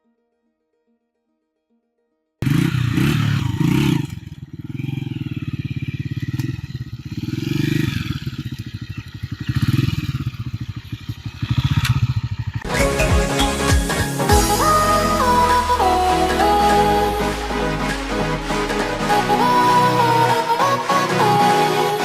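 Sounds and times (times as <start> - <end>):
engine ticking: 2.4 - 12.7
motorcycle engine revving: 2.4 - 13.0, 14.2 - 22.0.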